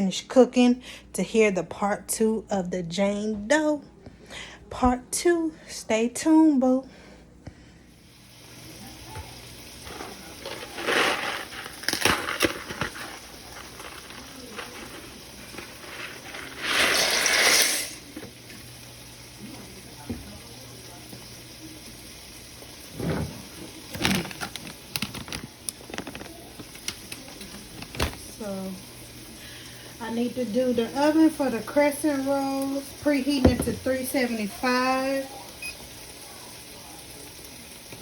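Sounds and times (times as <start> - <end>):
running water: 8.4 - 38.0
cookware and utensils clattering: 8.9 - 18.7, 22.8 - 28.6, 32.3 - 35.8.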